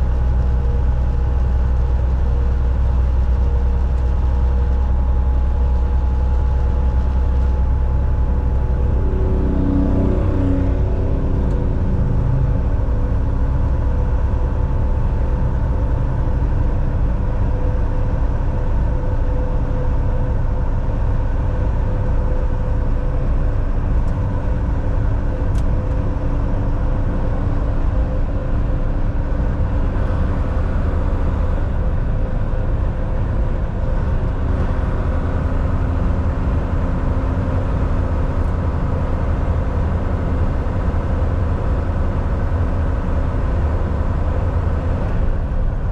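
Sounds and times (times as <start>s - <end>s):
road noise: 0.0s - 45.9s
truck engine drone: 0.0s - 45.9s.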